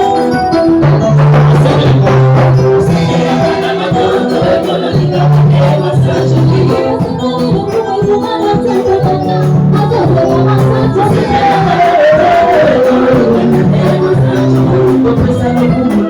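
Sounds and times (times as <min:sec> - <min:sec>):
percussion: 0:00.0 - 0:16.0
sung gospel melody: 0:00.0 - 0:16.0
sustained bass line: 0:00.8 - 0:07.0, 0:09.2 - 0:15.9.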